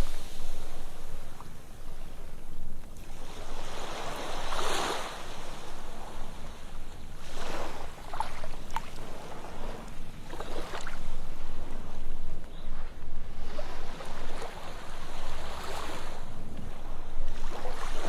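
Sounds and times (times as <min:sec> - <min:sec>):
ocean waves breaking on sand: 0:00.0 - 0:18.0.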